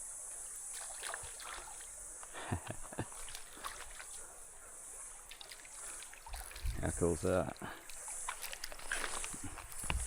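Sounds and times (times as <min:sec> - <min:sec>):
high-pitched hiss: 0:00.0 - 0:10.0
splashes in shallow water: 0:00.7 - 0:02.0, 0:02.6 - 0:04.4, 0:05.0 - 0:10.0.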